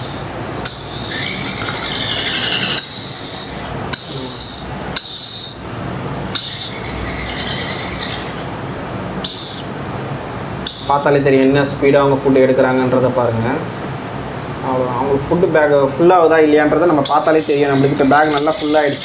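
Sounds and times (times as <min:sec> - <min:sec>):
parrot chick begging calls: 0:00.0 - 0:08.5, 0:09.2 - 0:09.8, 0:10.6 - 0:11.1, 0:17.0 - 0:19.0.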